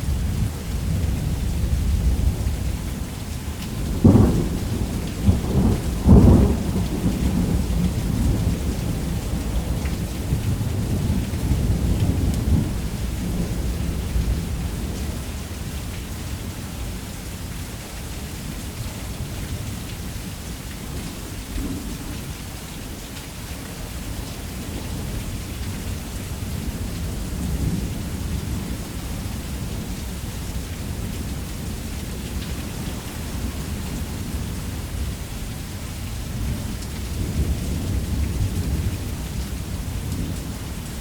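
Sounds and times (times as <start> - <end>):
low thunder rumble: 0.0 - 15.7, 24.6 - 41.0
heavy rain falling: 0.0 - 41.0.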